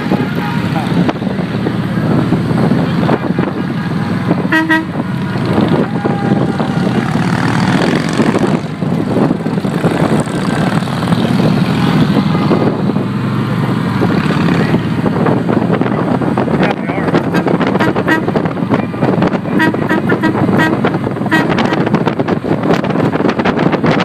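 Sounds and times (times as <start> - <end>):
motorcycle engines running: 0.0 - 24.0
short horn toot: 4.5 - 5.0.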